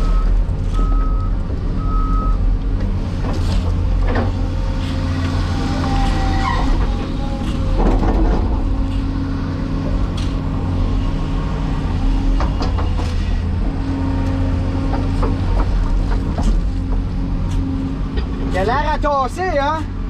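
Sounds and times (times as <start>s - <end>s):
excavator diesel engine: 0.0s - 19.3s
hydraulic whine: 2.8s - 17.2s.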